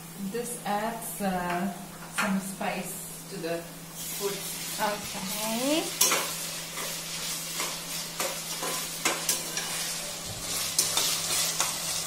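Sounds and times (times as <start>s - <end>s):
onions sizzling in a pan: 0.9s - 12.0s
spoon scraping and knocking pan: 6.0s - 12.0s.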